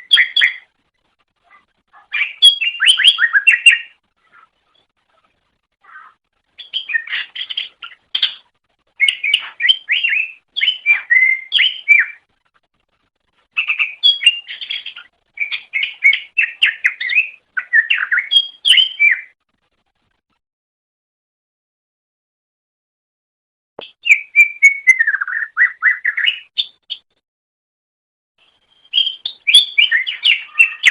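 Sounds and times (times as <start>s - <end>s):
bird singing chirps and trills: 0.0s - 0.8s, 1.5s - 5.2s, 5.8s - 12.3s, 13.5s - 19.4s, 23.8s - 27.0s, 28.4s - 30.9s.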